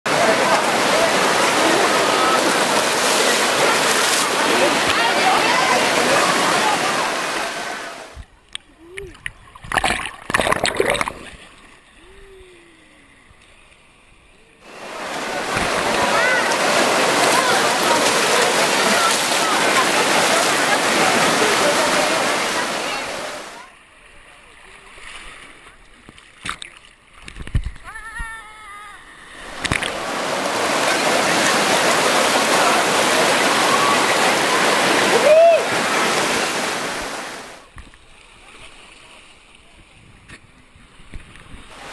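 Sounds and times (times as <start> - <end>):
loud rushing water: 0.0 - 8.2, 14.6 - 23.6, 29.3 - 37.7, 41.7 - 41.9
water splashing: 0.1 - 12.9, 14.6 - 23.7, 24.6 - 27.9, 29.0 - 39.7
faint water hush: 0.1 - 25.8, 27.8 - 40.1.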